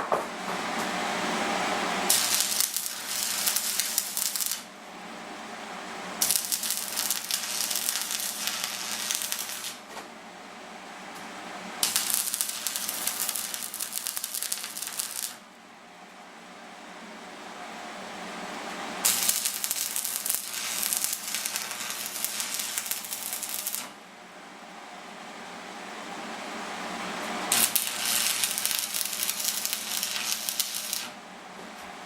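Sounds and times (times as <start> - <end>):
welding arc crackling and sizzling: 1.8 - 4.7, 6.2 - 9.9, 11.8 - 15.4, 19.0 - 24.0, 27.4 - 31.2.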